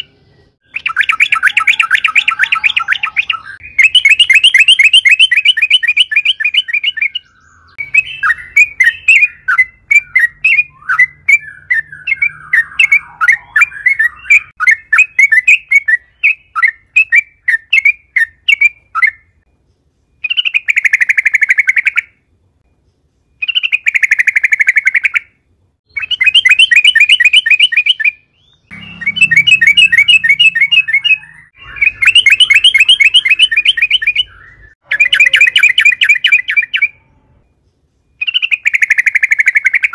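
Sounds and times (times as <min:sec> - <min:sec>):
bird chattering: 0:00.0 - 0:19.3, 0:25.9 - 0:37.1
bulbul singing bubbling trills: 0:28.7 - 0:37.0.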